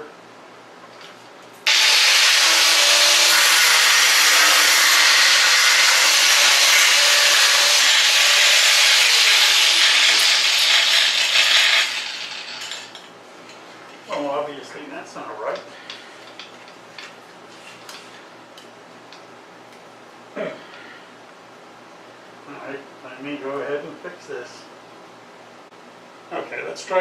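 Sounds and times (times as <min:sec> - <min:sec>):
angle grinder cutting steel: 0:01.6 - 0:13.0.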